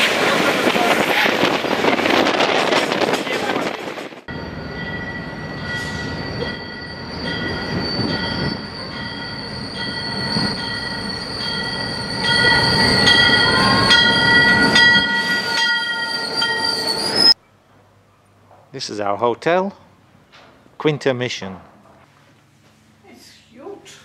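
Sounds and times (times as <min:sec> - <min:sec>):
train wheels and brakes squealing: 0:04.3 - 0:17.4.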